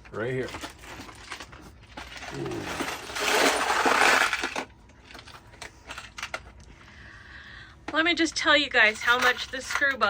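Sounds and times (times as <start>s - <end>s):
screws rattling in bucket: 0.1s - 6.4s, 8.8s - 10.0s.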